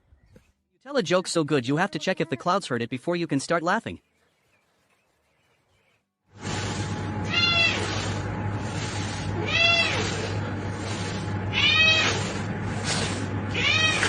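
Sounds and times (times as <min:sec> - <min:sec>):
cat meowing: 0:07.3 - 0:07.9, 0:09.4 - 0:10.2, 0:11.5 - 0:12.3, 0:13.5 - 0:14.0.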